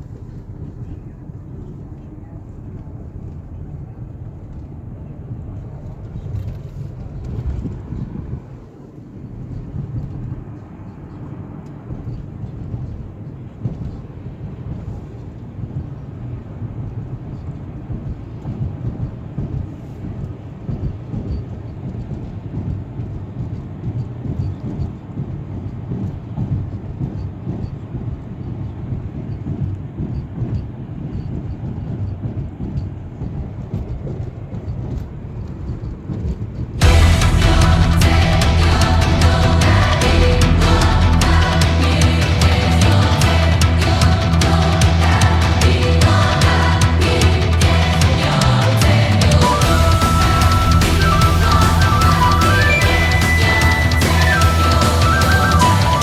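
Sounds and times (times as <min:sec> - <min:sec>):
car engine: 0:36.8 - 0:56.0.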